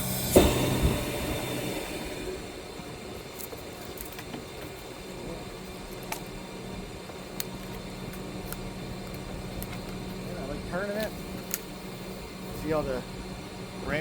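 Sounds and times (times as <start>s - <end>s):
truck engine and hydraulics humming: 0.0s - 14.0s.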